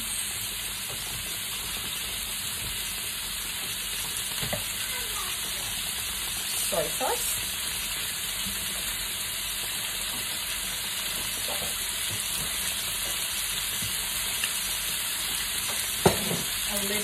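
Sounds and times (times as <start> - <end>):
meat sizzling in a wok: 0.0 - 17.0.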